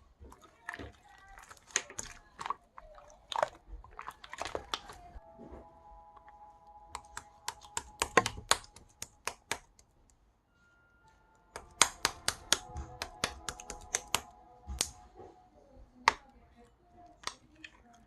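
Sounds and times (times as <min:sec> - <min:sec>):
sharp irregular clicks and taps: 0:06.9 - 0:10.2, 0:11.5 - 0:15.0.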